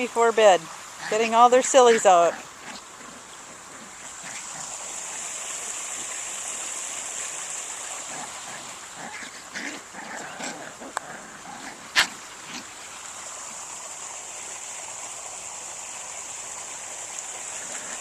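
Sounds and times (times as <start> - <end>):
high-pitched hiss: 0.0 - 10.3, 11.8 - 18.0
puppies growling and yipping: 0.7 - 12.8, 17.4 - 18.0.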